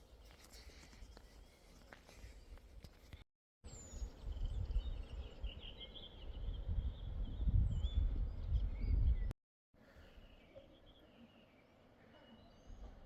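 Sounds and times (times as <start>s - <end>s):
birds chirping and trilling: 3.7s - 9.3s
wind rumble on microphone: 3.7s - 9.3s.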